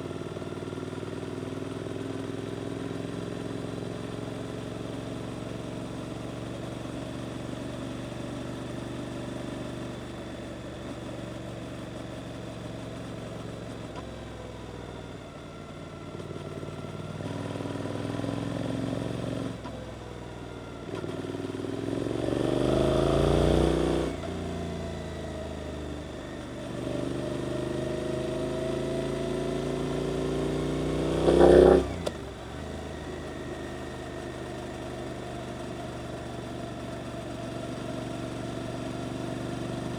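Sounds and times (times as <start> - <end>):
motorcycle engine accelerating: 20.4 - 39.9.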